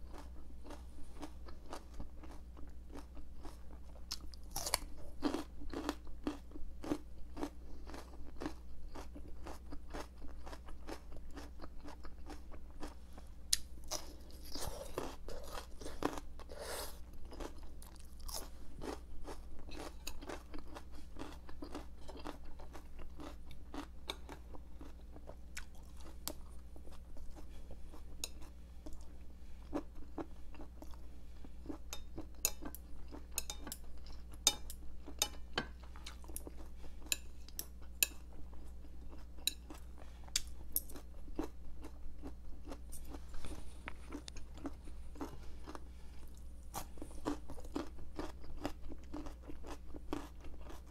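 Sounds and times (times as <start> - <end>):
crunching bell pepper: 0.1 - 26.7, 39.1 - 50.9.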